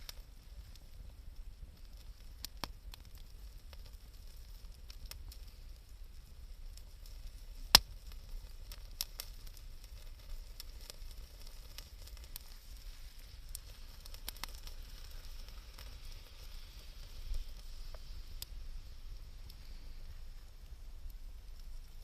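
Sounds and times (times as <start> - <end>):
campfire crackling and popping: 0.0 - 22.0
faint steady hiss: 0.0 - 22.0.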